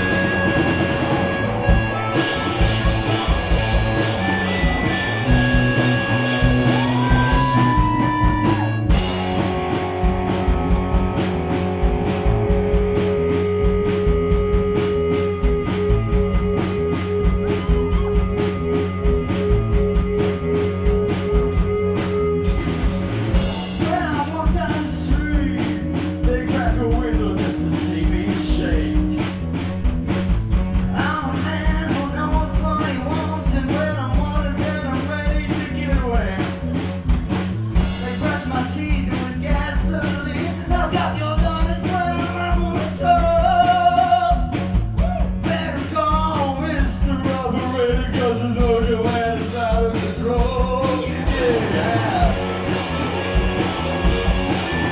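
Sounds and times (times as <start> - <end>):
fast steady drum beat: 0.0 - 54.9
rock band with accordion playing: 0.0 - 54.9
person singing: 38.0 - 53.0.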